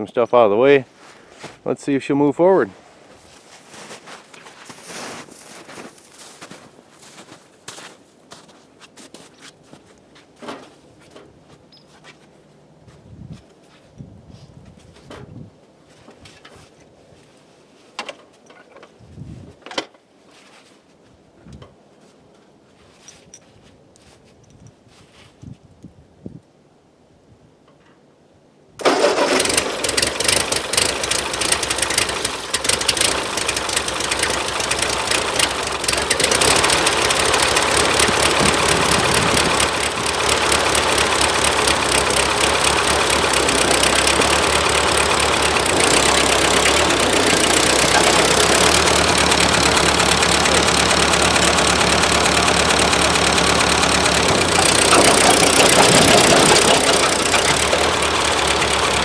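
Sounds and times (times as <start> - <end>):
tractor engine running rough: 28.8 - 59.0.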